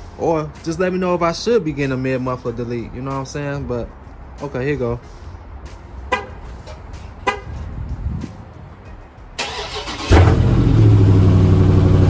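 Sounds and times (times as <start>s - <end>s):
car engine idling loudly: 10.0s - 12.0s.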